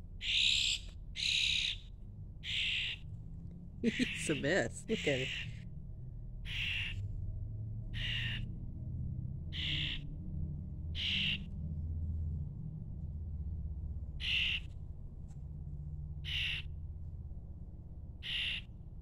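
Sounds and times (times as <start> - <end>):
low steady hum: 0.0 - 19.0
bird harsh raspy calls: 0.2 - 3.1, 3.8 - 5.6, 6.4 - 7.1, 7.9 - 8.5, 9.5 - 10.1, 10.9 - 11.5, 14.2 - 14.7, 16.2 - 16.8, 18.2 - 18.8.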